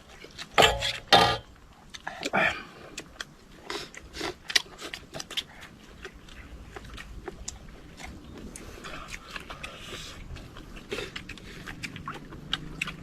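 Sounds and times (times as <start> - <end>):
biting and chewing: 0.0 - 13.0.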